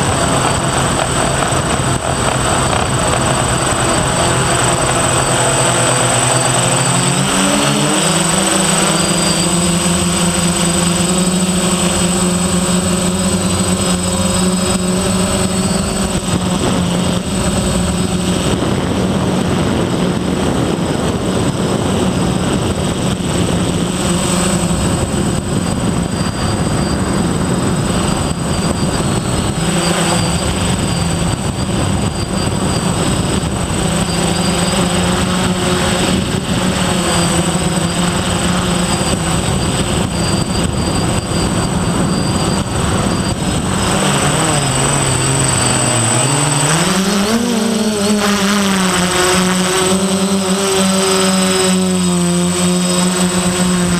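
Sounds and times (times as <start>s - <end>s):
quadcopter motors buzzing: 0.0s - 53.9s.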